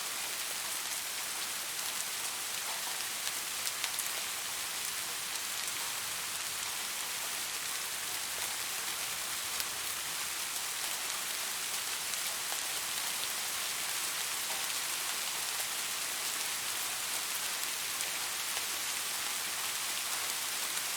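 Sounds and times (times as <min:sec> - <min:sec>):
rain hissing on a surface: 0:00.0 - 0:20.9.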